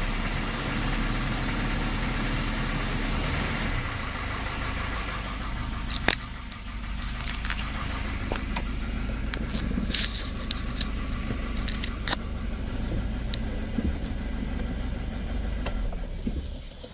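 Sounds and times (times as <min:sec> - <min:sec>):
car engine idling with knock: 0:00.0 - 0:16.9
sharp irregular clicks: 0:04.0 - 0:14.9.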